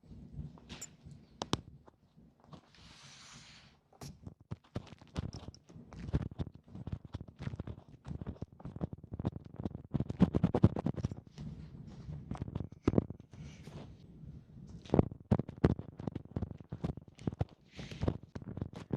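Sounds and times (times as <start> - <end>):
crackles and clicks: 4.2 - 11.6, 12.3 - 13.8, 14.7 - 18.9
scratching and rubbing at ear: 4.2 - 14.0.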